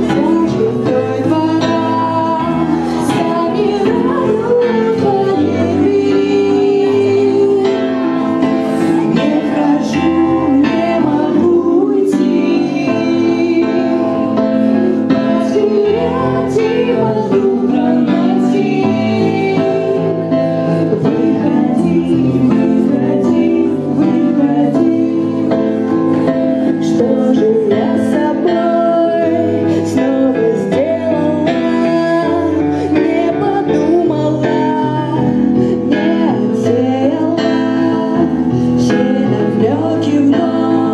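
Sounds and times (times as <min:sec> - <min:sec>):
rock band playing live: 0:00.0 - 0:31.0
person singing: 0:00.0 - 0:40.9.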